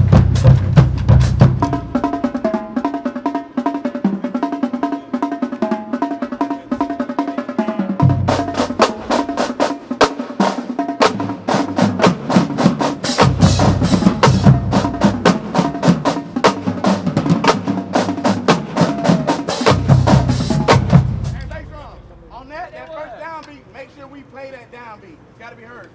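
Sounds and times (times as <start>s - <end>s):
bass drums: 0.0s - 2.8s, 8.0s - 10.1s, 11.2s - 22.7s
snare and tenor drum strokes: 0.0s - 22.7s.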